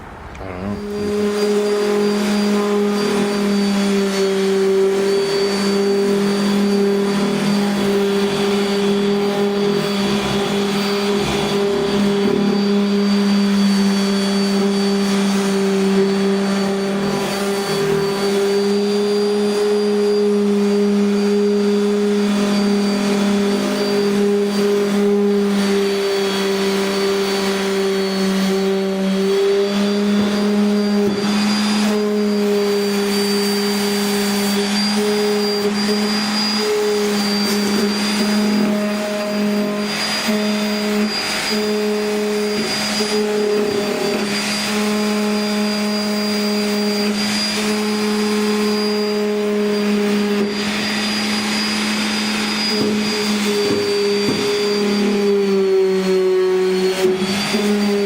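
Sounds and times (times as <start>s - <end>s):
power tool motor whining: 0.0s - 58.0s.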